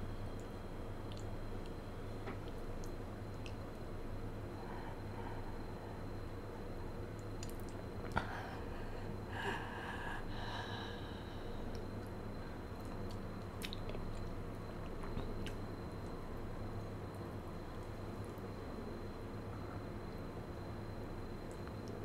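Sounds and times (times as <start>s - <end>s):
wet chewing clicks and smacks: 1.1s - 1.8s, 2.4s - 3.7s, 7.2s - 8.2s, 12.8s - 16.2s.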